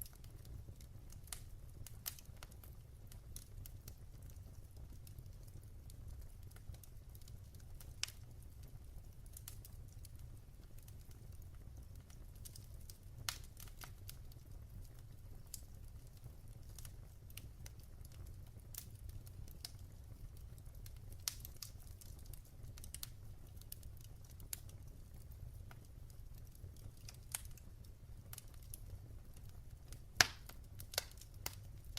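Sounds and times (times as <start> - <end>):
wood fire crackling in fireplace: 0.0 - 31.9.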